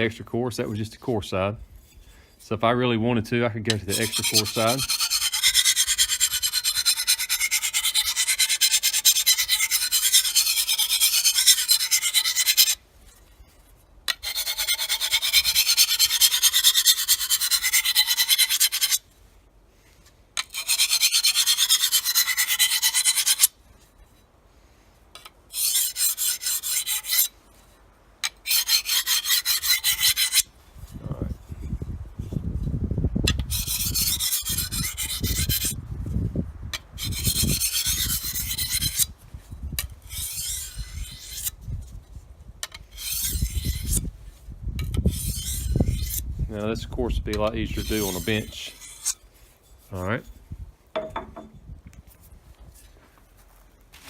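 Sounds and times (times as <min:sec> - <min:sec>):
knife rasping on sharpening plate: 0:03.7 - 0:12.8, 0:14.1 - 0:19.0, 0:20.4 - 0:23.5, 0:25.5 - 0:27.3, 0:28.2 - 0:30.5, 0:33.5 - 0:35.8, 0:37.0 - 0:39.1, 0:40.1 - 0:41.5, 0:42.9 - 0:44.1, 0:45.0 - 0:46.2, 0:47.6 - 0:50.4.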